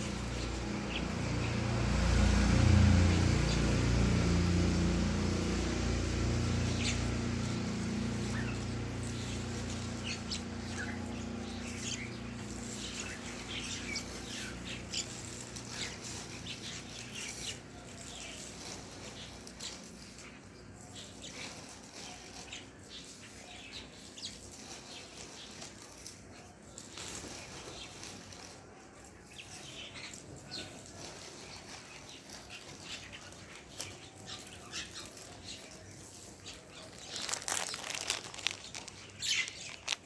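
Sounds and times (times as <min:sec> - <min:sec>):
pet bird chirping: 0:33.8 - 0:40.0.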